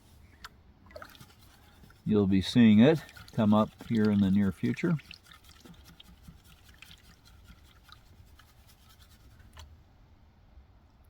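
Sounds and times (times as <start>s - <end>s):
gravel scraping in a pan: 1.2s - 9.4s.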